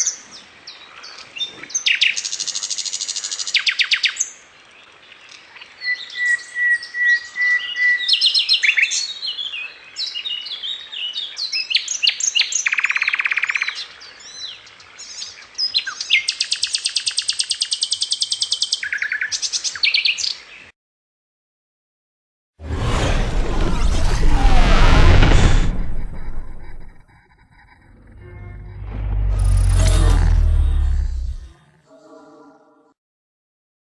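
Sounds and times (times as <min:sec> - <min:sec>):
songbird chirping and trilling: 0:04.8 - 0:20.7.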